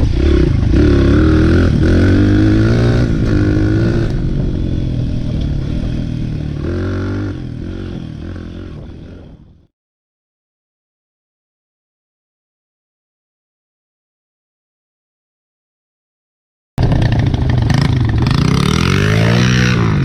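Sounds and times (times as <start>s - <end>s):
dirt bike engine revving: 0.0s - 9.6s, 16.8s - 20.0s.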